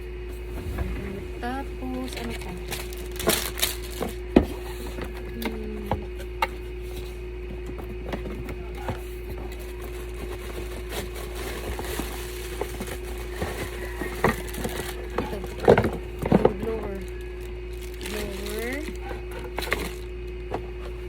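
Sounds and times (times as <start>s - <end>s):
steady electrical hum: 0.0s - 21.0s
packaging rustling: 2.0s - 5.0s, 9.0s - 16.3s, 17.0s - 20.1s.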